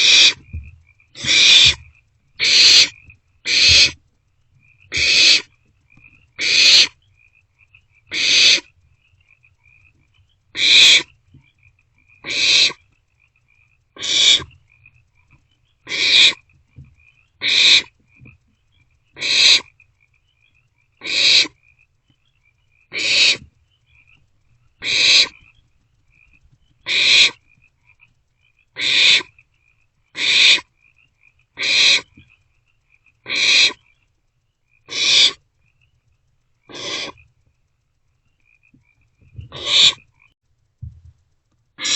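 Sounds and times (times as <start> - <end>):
owlets hissing begging calls: 0.0 - 0.4, 1.2 - 1.8, 2.4 - 4.0, 4.9 - 5.5, 6.4 - 7.0, 8.1 - 8.7, 10.6 - 11.1, 12.2 - 12.8, 14.0 - 14.6, 15.8 - 16.4, 17.4 - 17.9, 19.2 - 19.7, 21.0 - 21.6, 22.9 - 23.5, 24.8 - 25.4, 26.8 - 27.4, 28.8 - 29.4, 30.2 - 30.7, 31.6 - 32.2, 33.2 - 33.8, 34.9 - 35.4, 36.7 - 37.2, 39.4 - 40.1.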